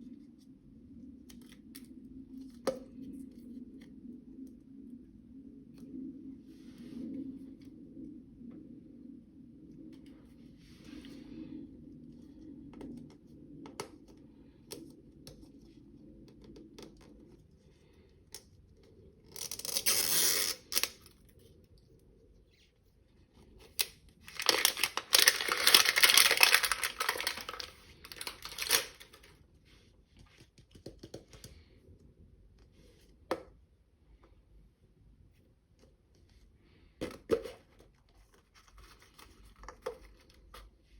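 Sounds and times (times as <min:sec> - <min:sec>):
packaging being torn and crinkled: 0:19.3 - 0:21.2, 0:23.7 - 0:29.3.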